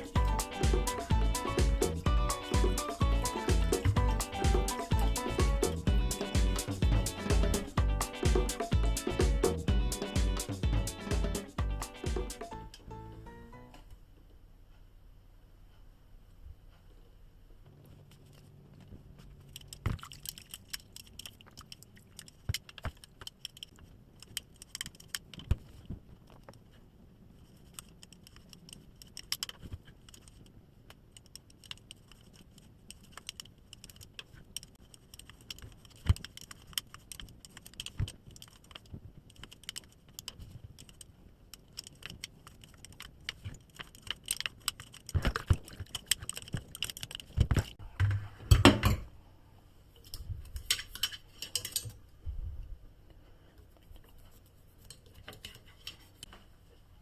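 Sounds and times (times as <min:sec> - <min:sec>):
metal parts clinking and rattling: 0:50.7 - 0:52.0.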